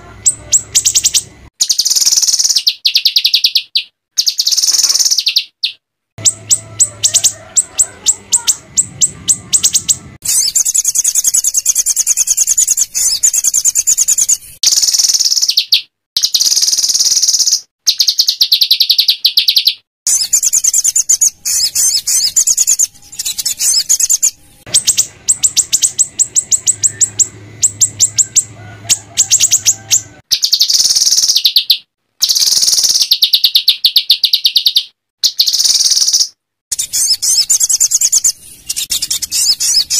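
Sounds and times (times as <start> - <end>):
songbird harsh rapid song: 0.0 - 39.9.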